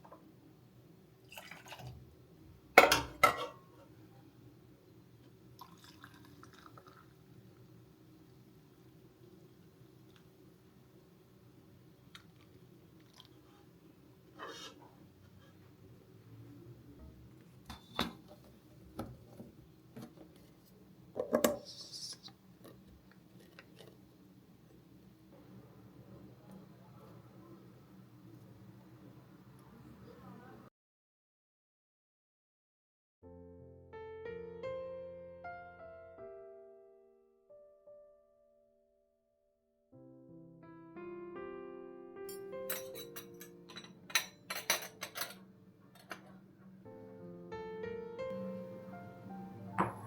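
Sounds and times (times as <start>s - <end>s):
kitchen items clicking and knocking: 42.7s - 45.4s.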